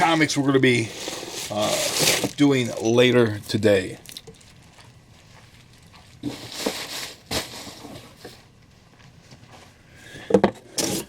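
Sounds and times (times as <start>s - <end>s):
packaging rustling: 0.9s - 2.9s.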